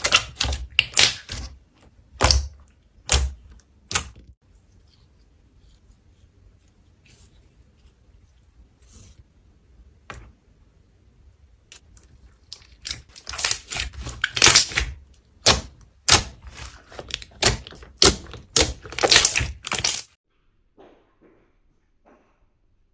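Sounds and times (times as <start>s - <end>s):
slime crackling and popping: 0.0s - 4.2s, 11.8s - 20.2s.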